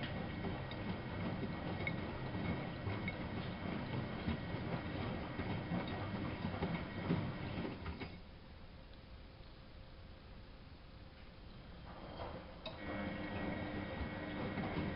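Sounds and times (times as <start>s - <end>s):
washing machine drum rumbling: 0.0s - 8.2s, 11.9s - 14.9s
faint steady hum: 7.8s - 14.3s.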